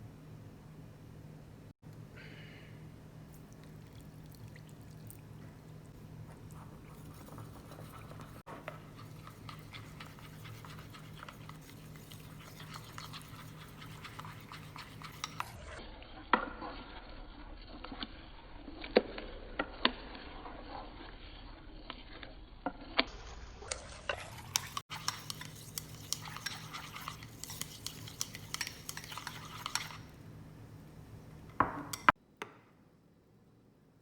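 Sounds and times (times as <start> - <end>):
food crackling and ticking: 3.4 - 15.5, 24.1 - 30.2.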